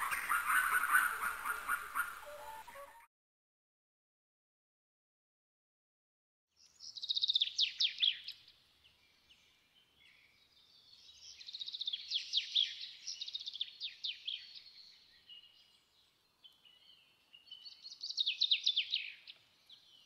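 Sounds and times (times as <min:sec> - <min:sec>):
birds singing: 0:00.0 - 0:02.7, 0:06.6 - 0:20.0.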